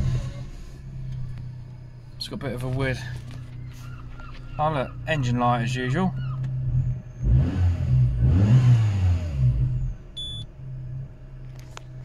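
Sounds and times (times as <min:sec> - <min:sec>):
car engine revving and idling: 0:00.0 - 0:12.0
electronic warning beep: 0:10.2 - 0:10.5.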